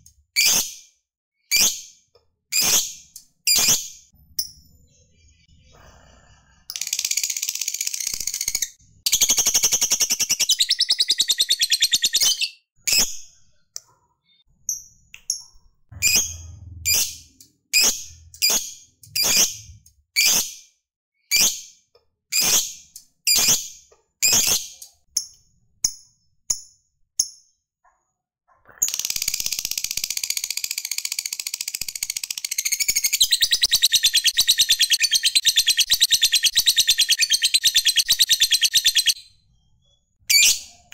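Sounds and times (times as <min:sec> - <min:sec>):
sharp bird chirps: 0:06.7 - 0:20.4, 0:28.9 - 0:40.9
lovebird chattering trill: 0:06.9 - 0:13.0, 0:31.9 - 0:39.2.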